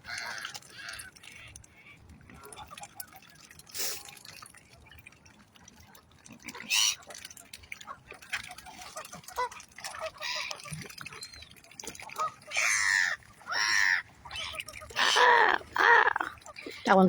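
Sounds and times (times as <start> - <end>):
geese and waterfowl calling: 0.0 - 2.9, 6.5 - 7.2, 7.8 - 11.2, 12.0 - 17.0
water splashing: 0.0 - 17.0.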